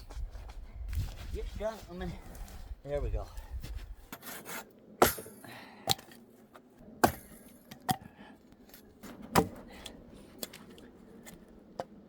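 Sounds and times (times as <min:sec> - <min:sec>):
axe chopping firewood: 0:04.1 - 0:06.2, 0:07.0 - 0:08.1, 0:09.0 - 0:10.6.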